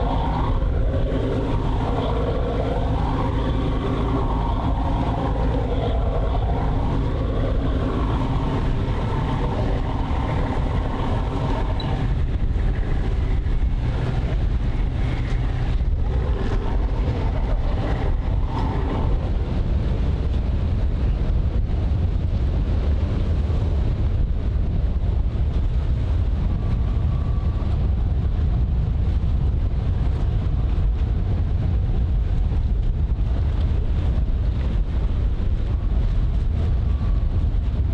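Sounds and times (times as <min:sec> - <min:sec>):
humming engine tone: 0:00.0 - 0:22.8
low rumble of vessel engines: 0:00.0 - 0:37.9
wind buffeting microphone: 0:00.0 - 0:37.9.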